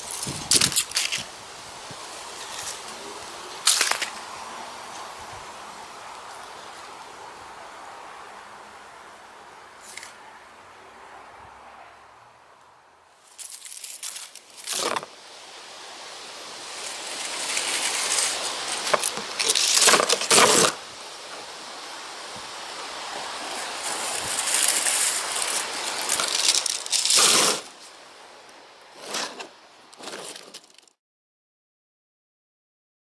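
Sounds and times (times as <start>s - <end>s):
dry leaves rustling and scraping: 0.0s - 7.0s, 13.2s - 31.0s
gusty wind: 0.0s - 13.2s, 14.4s - 29.9s.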